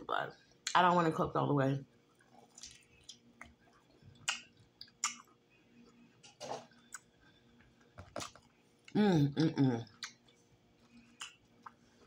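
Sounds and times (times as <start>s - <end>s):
mouth chewing crunchy food: 2.2s - 9.0s, 9.8s - 12.0s.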